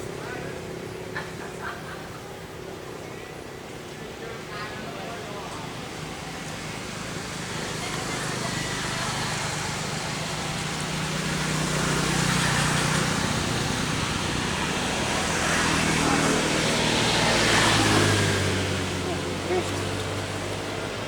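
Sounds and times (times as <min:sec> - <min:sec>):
traffic rushing noise: 0:00.0 - 0:04.5, 0:05.2 - 0:21.0
traffic engine hum: 0:00.0 - 0:21.0.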